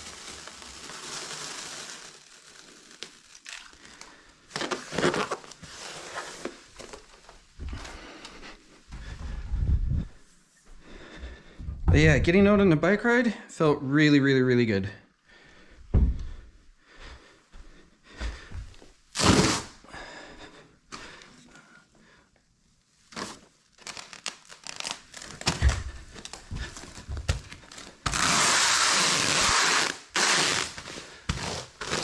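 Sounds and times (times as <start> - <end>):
plastic film ripping off roll: 0.0 - 7.3, 19.1 - 19.8, 23.1 - 32.0
plastic film crinkling: 0.0 - 7.6, 23.0 - 32.0.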